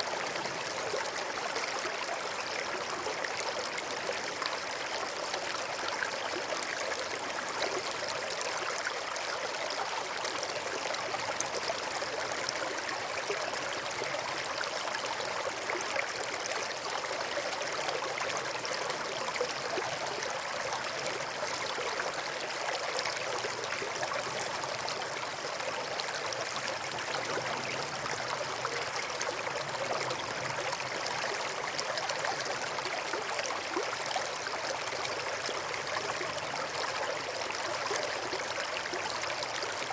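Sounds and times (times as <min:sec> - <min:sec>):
small stream flowing: 0:00.0 - 0:39.9.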